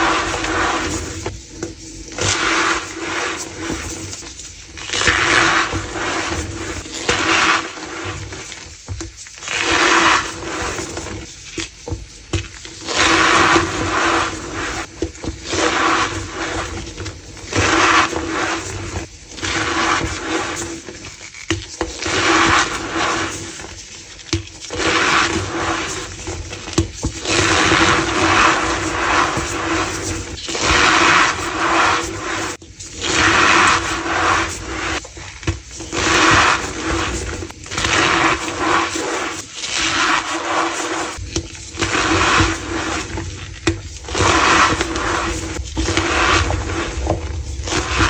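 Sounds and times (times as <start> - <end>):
chalk crunching squeakily: 27.2 - 35.1, 35.8 - 48.0.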